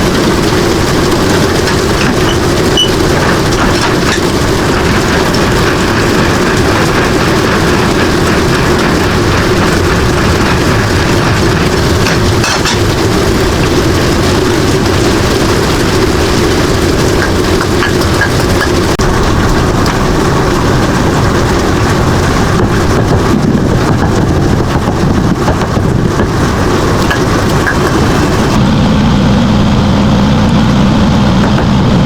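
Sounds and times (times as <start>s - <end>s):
road noise: 0.0s - 32.0s
truck engine rumble: 0.0s - 32.0s.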